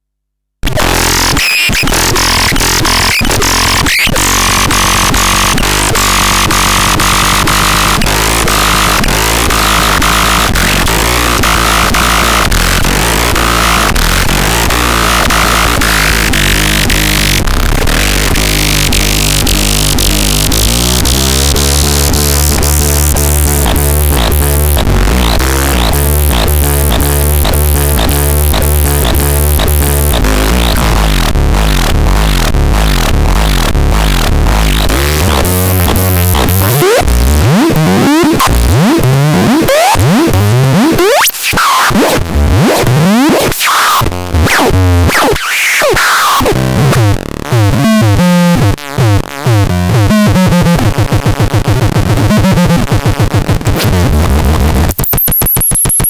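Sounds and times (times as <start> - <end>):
harsh synthesizer sounds: 0.6 - 56.0.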